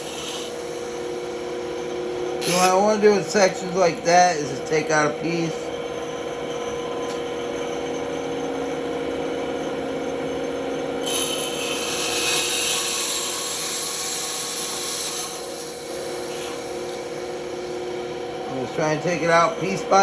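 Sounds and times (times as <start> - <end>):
saw blade cutting hiss: 0.0 - 0.6, 2.4 - 5.5, 11.0 - 17.0
band saw humming: 0.0 - 20.0.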